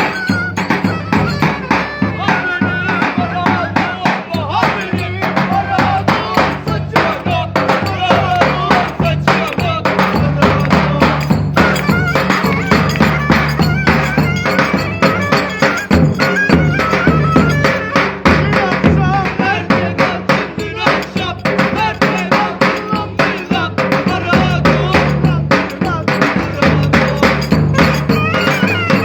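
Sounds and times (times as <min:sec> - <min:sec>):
ornamented lead melody: 0:00.0 - 0:02.2, 0:11.3 - 0:18.2
fast drum beat: 0:00.0 - 0:29.0
bass: 0:05.7 - 0:20.2, 0:24.2 - 0:29.0.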